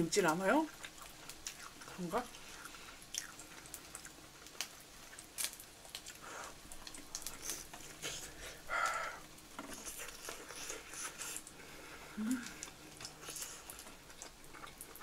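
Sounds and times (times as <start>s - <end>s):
quiet chewing: 0.3s - 15.0s.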